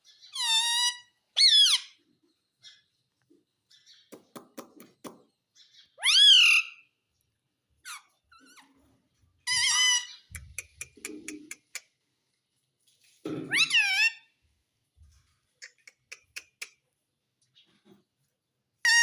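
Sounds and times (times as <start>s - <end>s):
parrot squawking: 0.2s - 2.0s, 6.0s - 6.9s, 7.8s - 8.6s, 9.5s - 11.8s, 13.5s - 14.3s
parrot harsh call: 6.0s - 6.9s, 9.5s - 10.3s.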